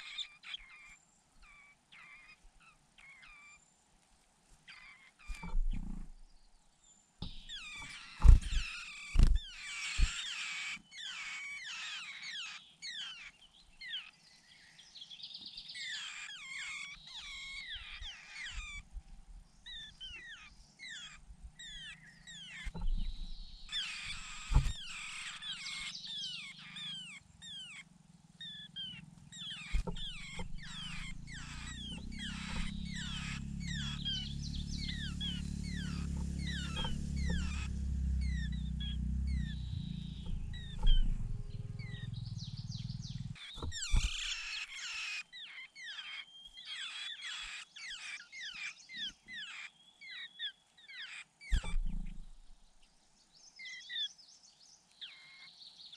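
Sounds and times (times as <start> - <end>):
nestling birds chirping: 0.0 - 55.9
sharp knocks: 24.1 - 25.0, 29.7 - 34.4, 43.5 - 44.5
low rumble: 28.8 - 44.4.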